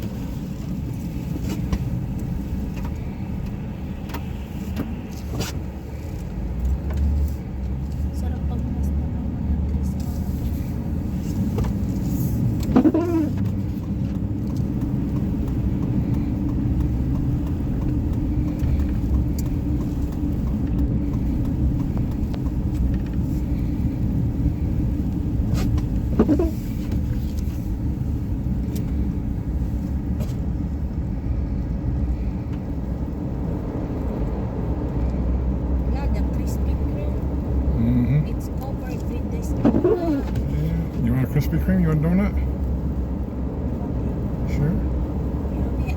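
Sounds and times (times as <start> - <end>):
car engine and tyres rumbling: 0.0 - 45.9
squeaks with bending pitch: 12.7 - 13.4, 39.6 - 40.3.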